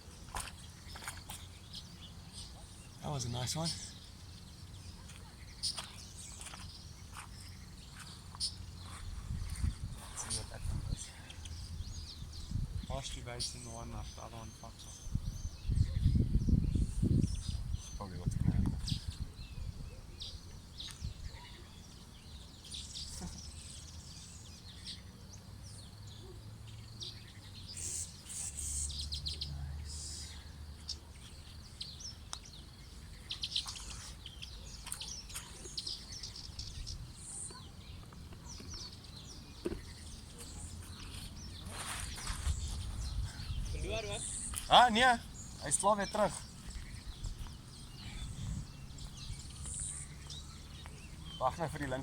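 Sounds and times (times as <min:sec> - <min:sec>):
birds chirping: 0:00.0 - 0:52.0.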